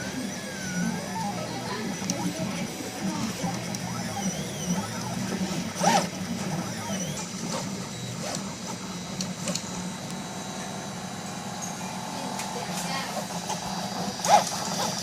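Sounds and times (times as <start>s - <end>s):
steady low hum: 0.0s - 15.0s
stepper motors whining: 0.0s - 15.0s.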